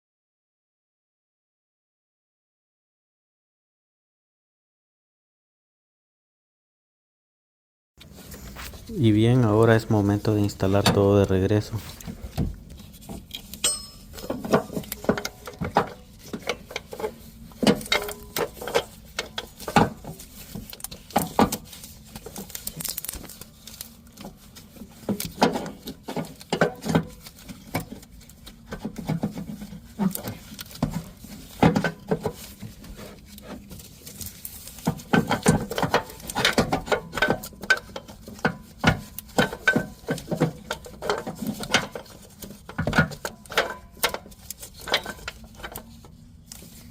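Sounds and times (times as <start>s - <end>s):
hand tools and metal parts clinking: 8.1s - 20.0s.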